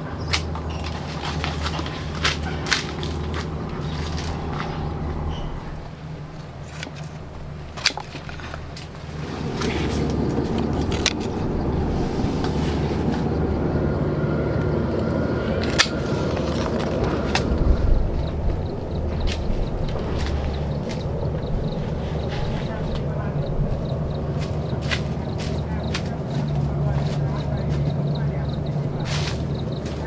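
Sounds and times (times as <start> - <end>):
motor running: 9.0 - 30.0.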